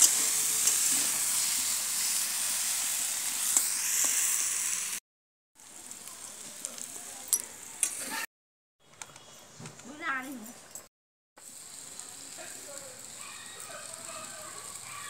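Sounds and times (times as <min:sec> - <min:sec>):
vegetables sizzling in a wok: 0:00.0 - 0:05.0, 0:05.6 - 0:08.3, 0:11.4 - 0:15.0.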